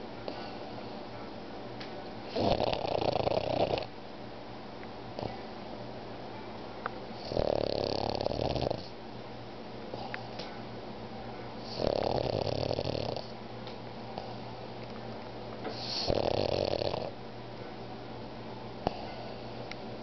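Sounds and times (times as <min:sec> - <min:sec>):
dog snoring: 0:02.3 - 0:03.9, 0:07.2 - 0:09.0, 0:11.6 - 0:13.3, 0:15.7 - 0:17.2.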